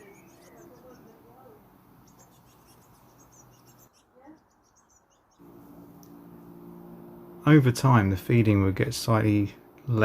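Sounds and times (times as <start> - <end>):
small birds chirping: 0.0 - 7.4
low steady hum: 5.4 - 10.0.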